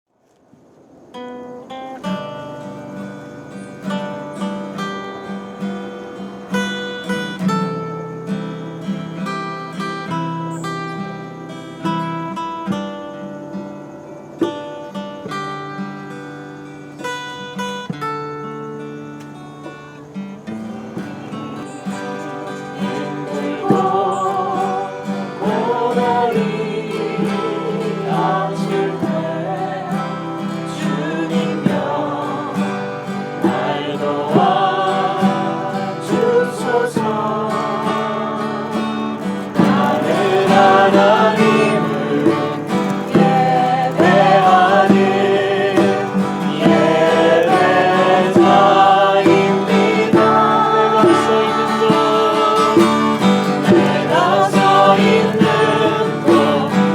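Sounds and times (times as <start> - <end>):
strummed acoustic guitar: 1.2 - 56.9
small group singing: 20.9 - 56.9.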